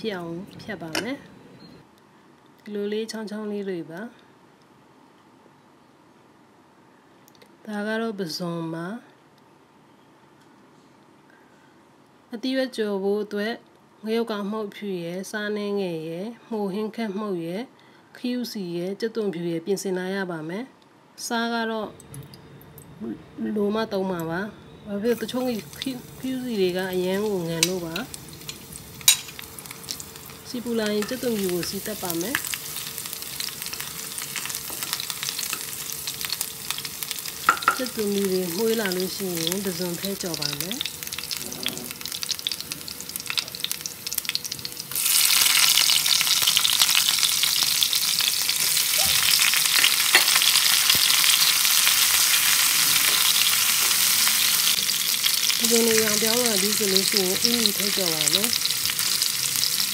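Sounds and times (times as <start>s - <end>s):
garlic sizzling in hot oil: 25.0s - 59.9s.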